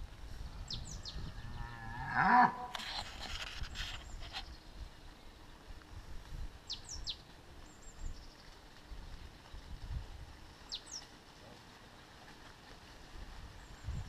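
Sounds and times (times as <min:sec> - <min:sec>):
low uneven rumble: 0:03.6 - 0:14.0.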